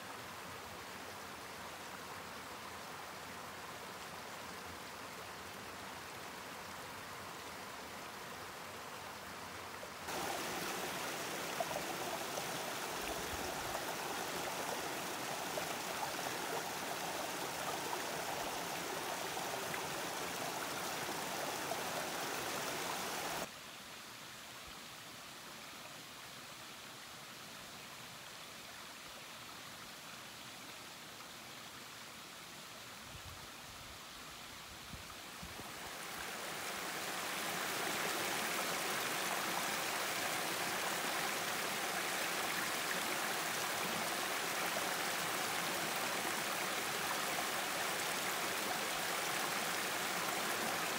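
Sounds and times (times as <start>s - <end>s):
mountain stream rushing: 0.0s - 23.6s, 34.7s - 50.9s.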